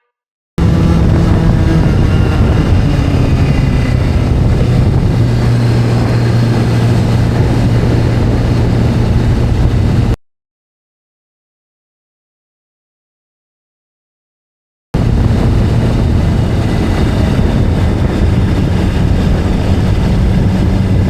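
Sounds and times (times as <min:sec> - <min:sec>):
video game motorcycle engine: 0:00.6 - 0:10.2, 0:15.0 - 0:21.0.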